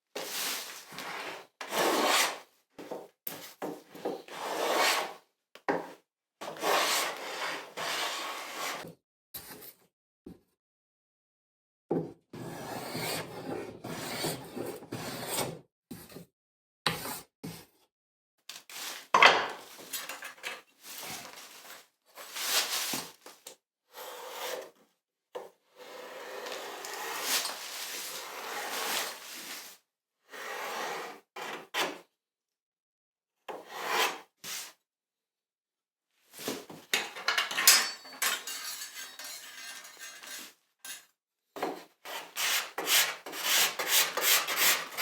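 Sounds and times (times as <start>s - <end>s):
hand tool scraping wood: 1.0s - 2.4s, 4.1s - 5.1s, 36.9s - 41.0s, 42.1s - 45.0s.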